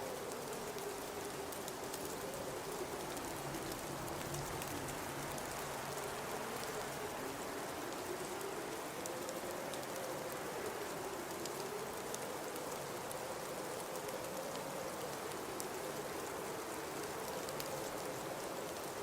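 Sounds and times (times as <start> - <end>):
faint ticks: 7.9 - 19.0.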